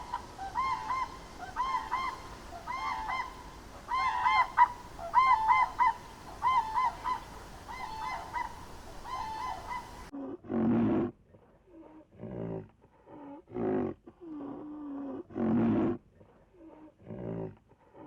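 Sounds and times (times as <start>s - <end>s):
deeper animal call: 0.0s - 10.1s
geese honking: 0.0s - 10.1s.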